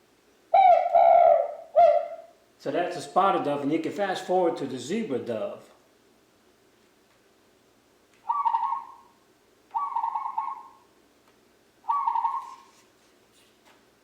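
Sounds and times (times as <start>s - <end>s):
dove cooing from small speaker: 0.5s - 2.3s, 8.2s - 9.1s, 9.7s - 10.8s, 11.9s - 12.7s.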